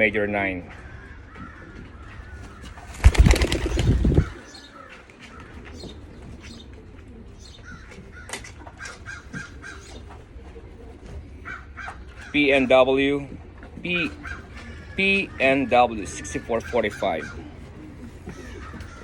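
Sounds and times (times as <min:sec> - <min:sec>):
pigeon wings flapping: 0:02.6 - 0:04.5.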